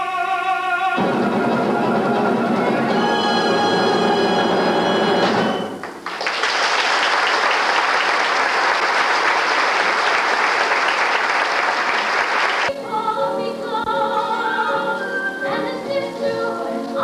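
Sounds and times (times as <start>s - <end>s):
orchestra playing: 1.0s - 6.0s
audience applauding: 1.0s - 12.7s.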